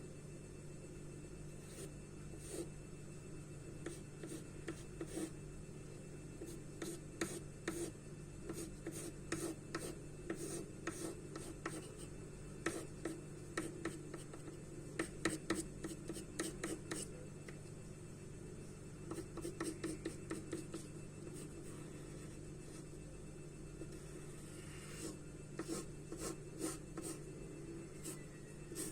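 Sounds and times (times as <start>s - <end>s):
steady low hum: 0.0s - 28.9s
charcoal scratching on paper: 24.5s - 27.2s.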